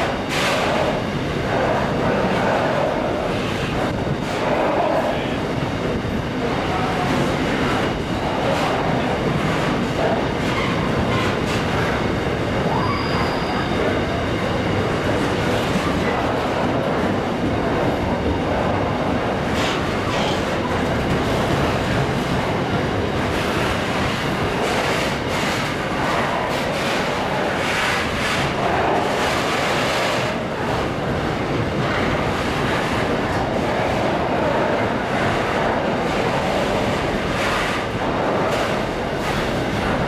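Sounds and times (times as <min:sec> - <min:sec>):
train wheels rumbling on rail: 0:00.0 - 0:40.0
high wheel squeal: 0:12.7 - 0:14.0.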